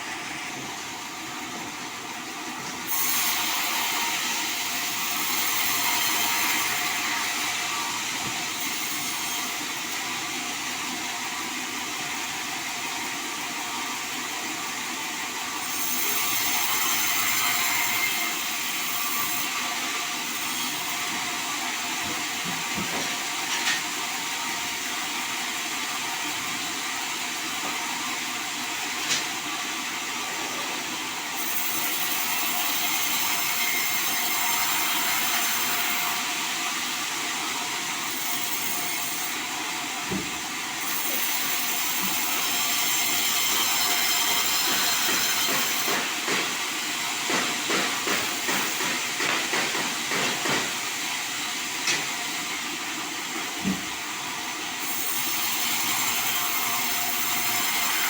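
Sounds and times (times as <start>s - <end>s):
band saw cutting log: 2.8s - 10.0s, 15.6s - 23.9s, 30.0s - 58.0s.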